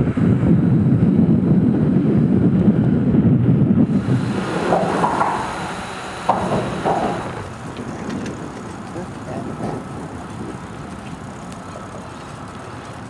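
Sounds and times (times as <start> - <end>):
wind rumbling on microphone: 0.0 - 13.0
faint knocks: 4.0 - 7.5.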